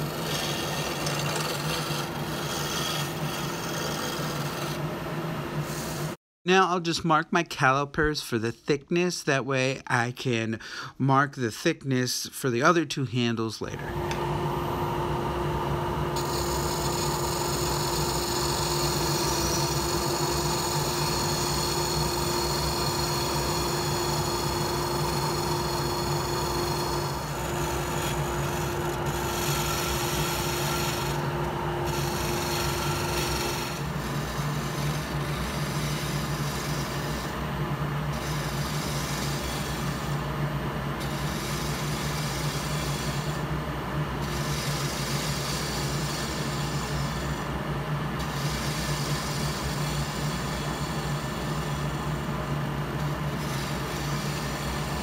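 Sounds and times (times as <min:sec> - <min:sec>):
lathe tool scraping wood: 0:00.0 - 0:05.0, 0:05.6 - 0:06.2, 0:13.8 - 0:37.5, 0:38.1 - 0:40.4, 0:41.0 - 0:43.5, 0:44.2 - 0:47.6, 0:48.2 - 0:55.0.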